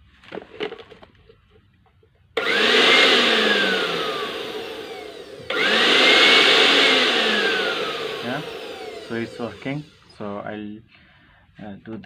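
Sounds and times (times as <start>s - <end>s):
blender motor whine: 2.4s - 10.2s.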